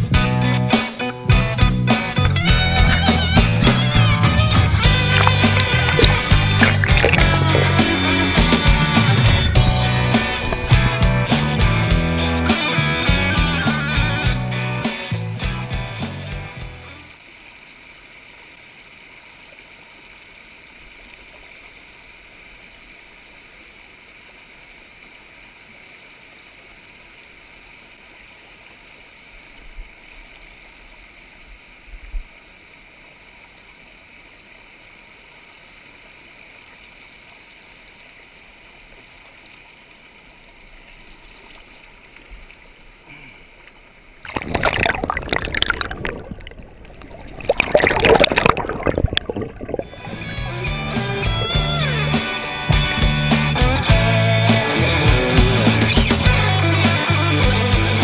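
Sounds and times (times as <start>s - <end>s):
creek water running: 0.0s - 58.0s
low thumps: 1.4s - 13.5s
loud rush of noise: 4.8s - 12.5s.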